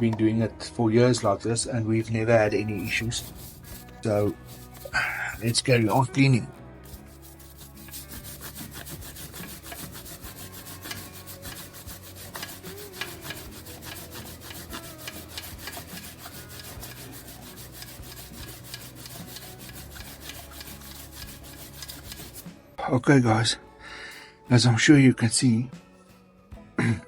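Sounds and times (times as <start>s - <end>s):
brush scrubbing a chain: 1.9s - 6.1s, 6.8s - 22.5s.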